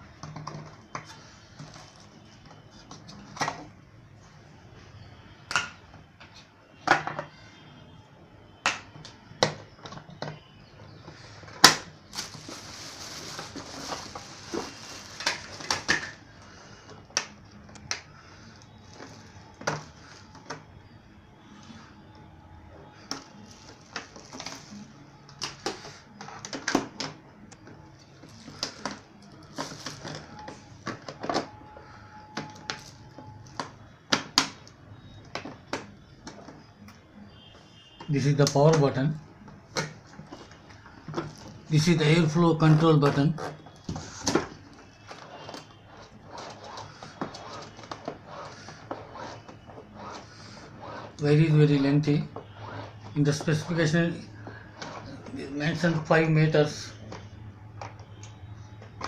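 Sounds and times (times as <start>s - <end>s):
plastic parts clicking and knocking: 0.1s - 3.7s, 5.5s - 7.4s, 8.6s - 11.9s, 13.4s - 16.3s, 23.1s - 31.6s
packaging rustling: 11.4s - 16.3s, 28.2s - 31.1s.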